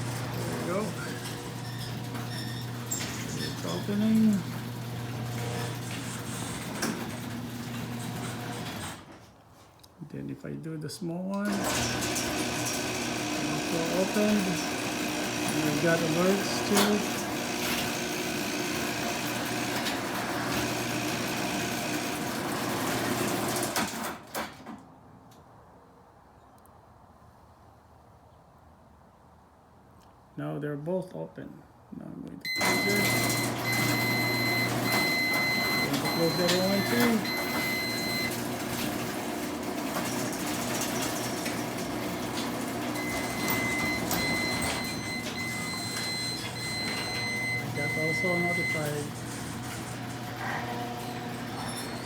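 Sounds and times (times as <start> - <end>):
garage door clunks: 0.0 - 9.1, 11.5 - 24.8, 32.5 - 52.0
garage door opener whirring: 0.0 - 9.3, 11.4 - 24.8, 32.5 - 52.0
high beeping: 32.5 - 38.4, 43.0 - 49.2.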